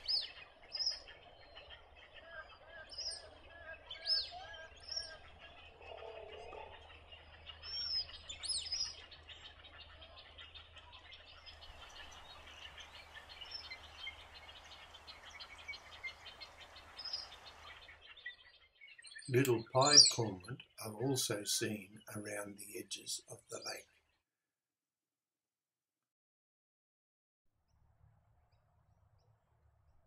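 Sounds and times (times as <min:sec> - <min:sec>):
chatter of many bird calls: 0:00.0 - 0:24.2
high down-slurred bird chirps: 0:00.0 - 0:24.2.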